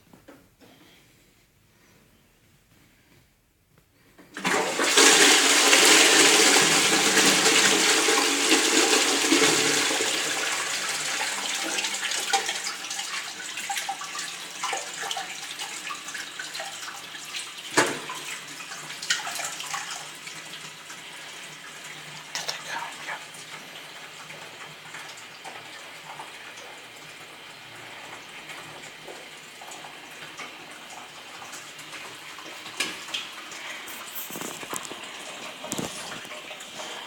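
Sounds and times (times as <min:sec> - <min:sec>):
toilet flushing: 0:04.2 - 0:37.0.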